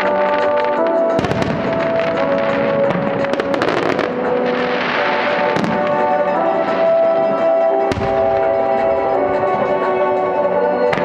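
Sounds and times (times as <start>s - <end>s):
fireworks crackling hiss: 0.0s - 7.4s
fireworks bursting: 0.0s - 9.8s
steady music: 0.0s - 11.0s.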